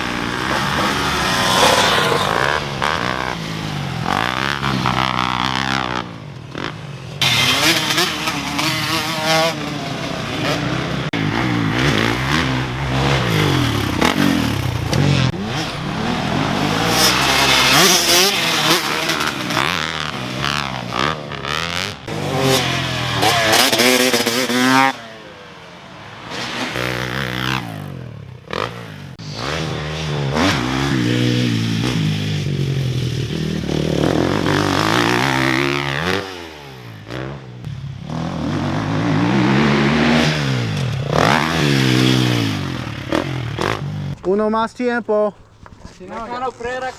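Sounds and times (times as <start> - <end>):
dirt bike engine revving: 0.0 - 44.3.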